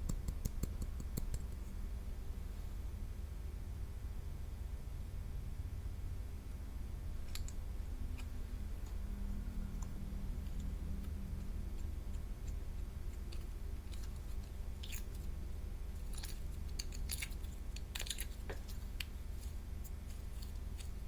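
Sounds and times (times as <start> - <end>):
steady low hum: 0.0 - 21.0
sticky slime clicks and crackles: 9.8 - 15.3, 16.0 - 19.2.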